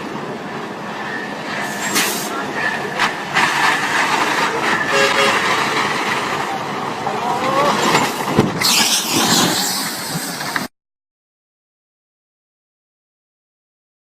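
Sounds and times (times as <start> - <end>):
dense vehicle noise: 0.0 - 10.7
rush of hissing: 1.6 - 2.4, 8.6 - 10.7
brief horn-like tones: 4.8 - 5.5.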